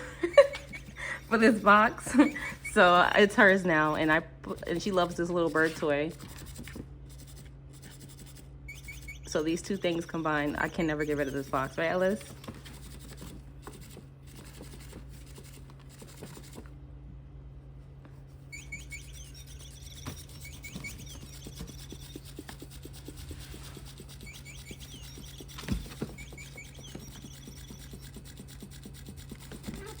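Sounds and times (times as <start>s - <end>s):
light scratching and rubbing: 0.0s - 16.7s, 18.1s - 30.0s
electronic toy bird chirping: 8.1s - 12.1s, 18.5s - 30.0s.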